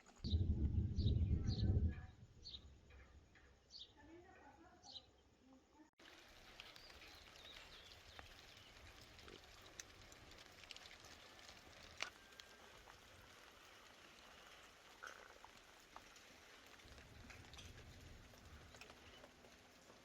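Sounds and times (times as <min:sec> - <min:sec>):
faint high bird chirps: 0:00.2 - 0:05.8
light rain hiss: 0:06.0 - 0:20.0
water drips: 0:06.0 - 0:20.0.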